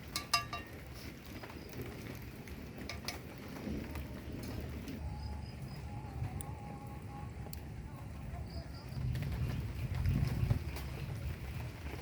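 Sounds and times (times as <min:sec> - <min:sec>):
dish clinking: 0:00.0 - 0:00.8
low rumbling rain: 0:00.0 - 0:12.0.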